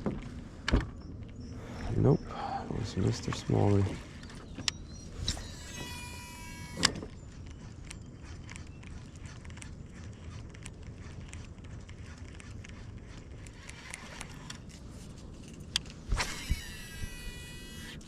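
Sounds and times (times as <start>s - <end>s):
faint reel ticking: 2.9s - 14.7s
reel spool whirring: 2.9s - 14.8s, 16.0s - 18.0s
reel click: 10.3s - 14.7s, 15.7s - 18.0s.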